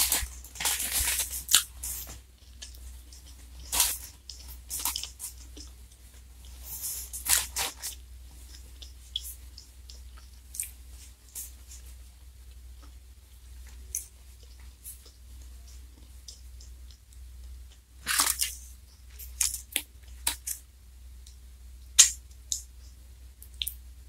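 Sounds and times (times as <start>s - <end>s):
chewing crunchy wafer cone: 0.0s - 11.6s, 13.6s - 20.6s
mouth clicks: 22.0s - 22.7s.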